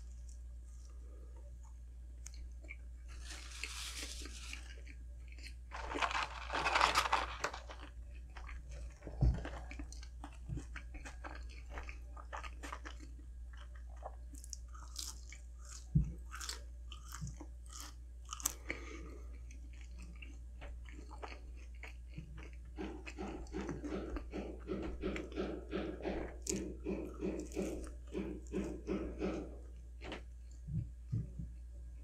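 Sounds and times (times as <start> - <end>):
chewing with wet mouth clicks: 1.6 - 3.2, 8.1 - 24.4
crunchy bites: 2.2 - 19.1.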